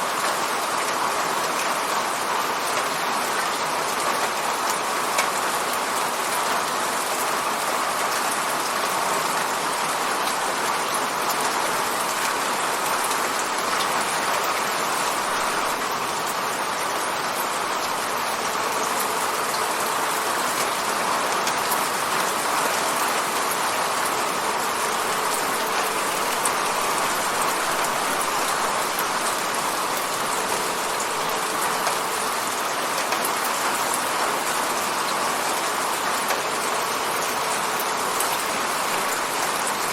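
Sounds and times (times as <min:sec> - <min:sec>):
rain hitting window pane: 0:17.7 - 0:37.2.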